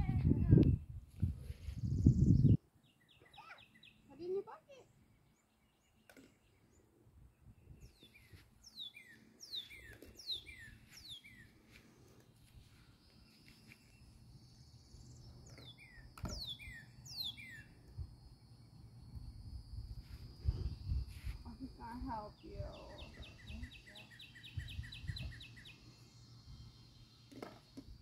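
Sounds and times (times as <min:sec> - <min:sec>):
songbird whistling: 0:07.8 - 0:11.5, 0:15.0 - 0:17.8, 0:22.8 - 0:27.1.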